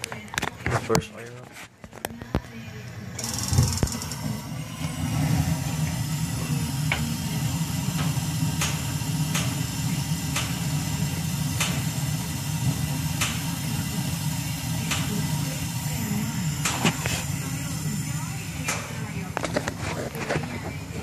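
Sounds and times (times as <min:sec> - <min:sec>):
gas heater rumbling: 0:00.0 - 0:21.0
sharp igniter clicks: 0:08.6 - 0:09.6.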